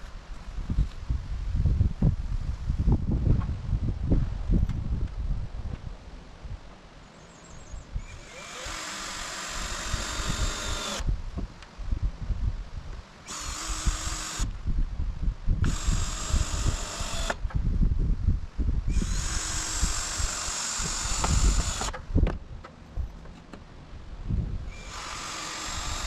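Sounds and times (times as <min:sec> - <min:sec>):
wind buffeting microphone: 0:00.0 - 0:06.7, 0:07.7 - 0:23.2, 0:23.9 - 0:26.0
power drill driving fasteners: 0:08.1 - 0:11.1, 0:13.2 - 0:14.6, 0:15.6 - 0:17.5, 0:18.9 - 0:22.1, 0:24.7 - 0:26.0.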